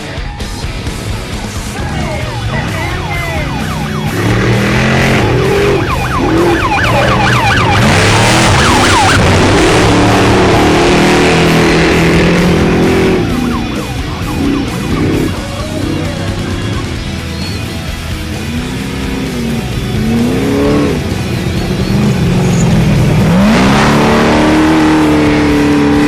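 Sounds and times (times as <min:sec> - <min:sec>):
rock music: 0:00.0 - 0:26.0
truck engines revving: 0:00.0 - 0:26.0.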